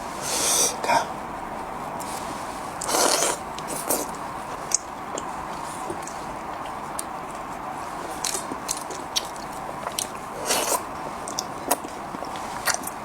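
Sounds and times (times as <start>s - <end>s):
person biting and chewing: 2.8s - 7.5s, 8.1s - 13.0s.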